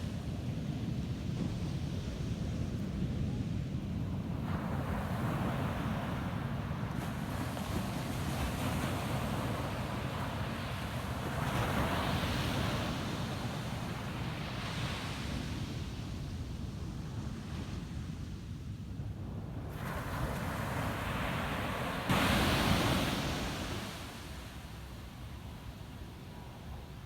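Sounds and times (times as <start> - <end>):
ocean surf breaking on beach: 19.7 - 26.8.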